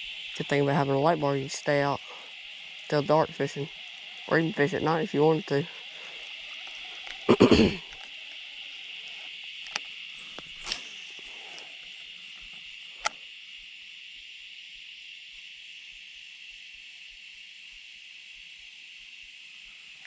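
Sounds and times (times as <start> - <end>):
high-pitched insect chorus: 0.0 - 20.0
sharp clicks: 9.1 - 13.2.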